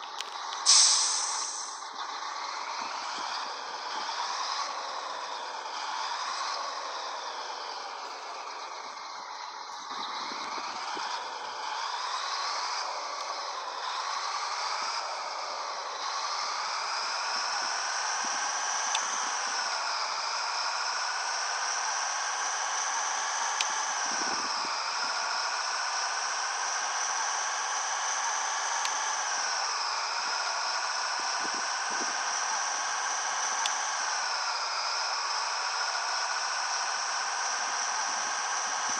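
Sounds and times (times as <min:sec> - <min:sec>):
truck engine whine: 0:00.0 - 0:38.9
steady hiss: 0:00.7 - 0:01.8.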